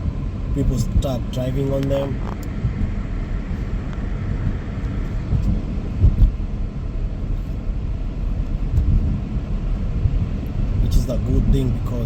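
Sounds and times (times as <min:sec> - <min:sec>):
road and engine rumble in car: 0:00.0 - 0:12.0
car bumps: 0:01.0 - 0:06.6.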